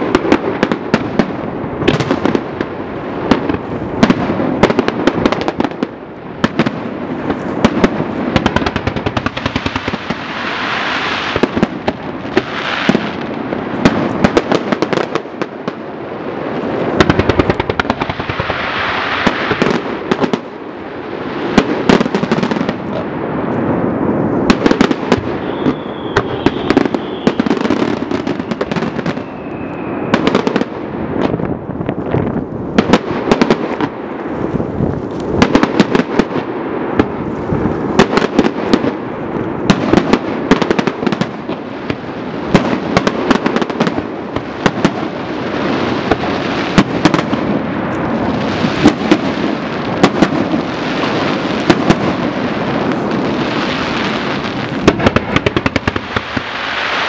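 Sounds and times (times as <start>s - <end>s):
rushing hiss of fireworks: 0.0s - 57.0s
firework shells bursting: 24.5s - 31.4s.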